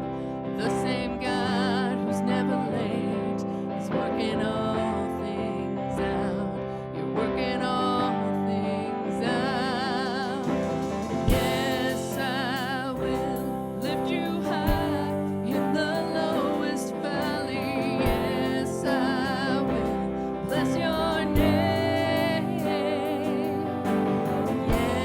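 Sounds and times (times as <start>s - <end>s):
person singing wordless notes: 7.4s - 25.0s
worship band music: 7.4s - 25.0s.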